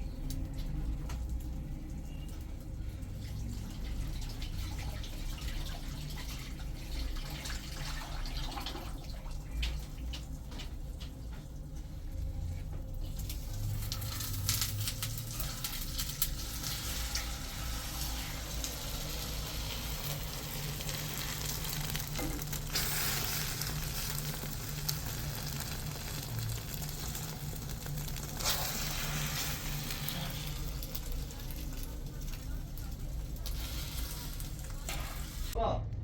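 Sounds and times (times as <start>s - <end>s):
food sizzling in hot oil: 12.4s - 35.6s.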